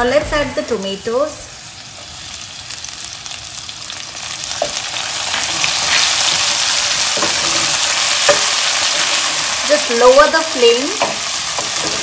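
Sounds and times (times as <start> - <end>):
tomatoes sizzling in oil: 0.0 - 12.0
wooden spatula knocking pan: 10.9 - 12.0.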